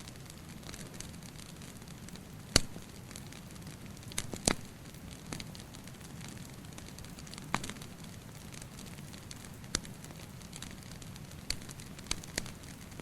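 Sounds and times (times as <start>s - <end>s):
sharp pops from fire: 0.0s - 13.0s
wood fire crackling: 0.0s - 13.0s.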